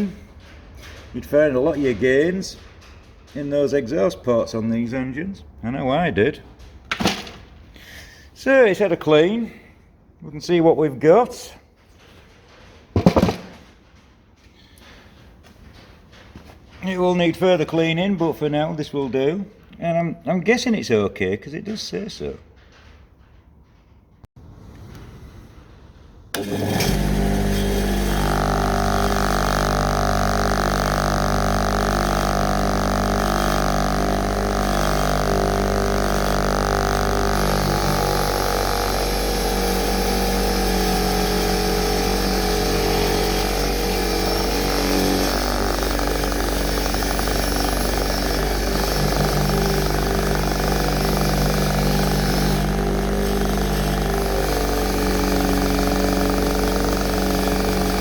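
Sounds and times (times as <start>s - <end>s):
machine motor humming: 26.4s - 58.0s.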